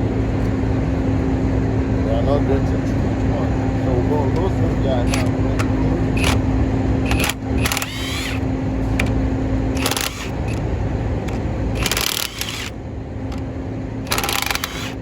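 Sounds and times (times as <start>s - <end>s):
ratchet wrench clicking: 5.1s - 5.3s, 6.2s - 6.4s, 7.0s - 8.4s, 9.8s - 10.6s, 11.3s - 12.7s, 14.1s - 15.0s.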